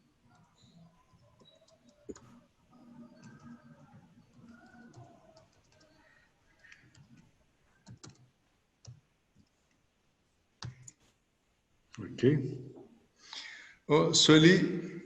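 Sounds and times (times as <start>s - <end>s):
keyboard keys clicking: 0.4s - 2.4s, 3.1s - 6.0s, 7.8s - 9.6s.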